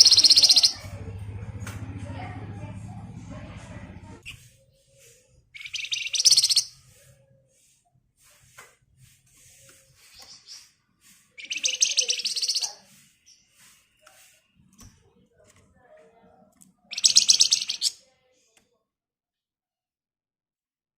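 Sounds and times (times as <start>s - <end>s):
bird rattling trill: 0.0s - 0.9s, 5.6s - 6.8s, 11.4s - 12.8s, 16.9s - 17.9s.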